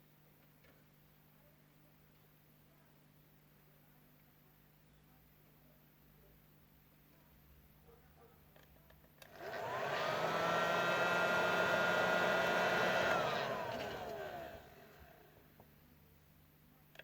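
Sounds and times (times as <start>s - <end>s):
hot air gun fan whining: 9.2s - 15.3s.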